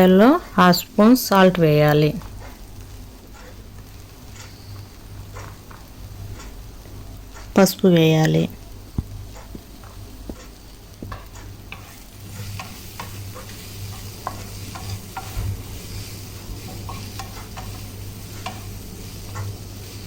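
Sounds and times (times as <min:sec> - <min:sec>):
onions sizzling in oil: 0:00.0 - 0:20.0
spoon scraping a pan: 0:09.8 - 0:20.0.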